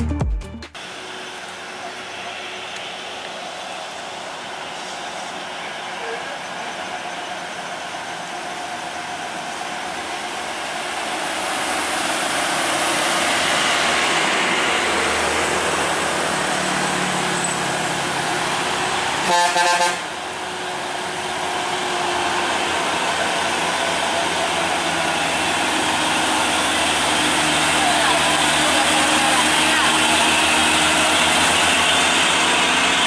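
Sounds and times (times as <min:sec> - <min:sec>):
heavy truck engine under load: 0:00.8 - 0:33.0
vehicle horn: 0:19.2 - 0:20.1.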